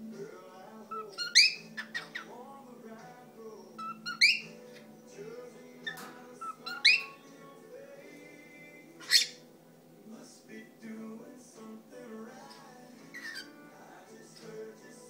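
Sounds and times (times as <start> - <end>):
cockatiel whistling: 0.9 - 2.3, 3.8 - 4.9, 5.8 - 7.2, 9.0 - 9.4, 13.1 - 13.5.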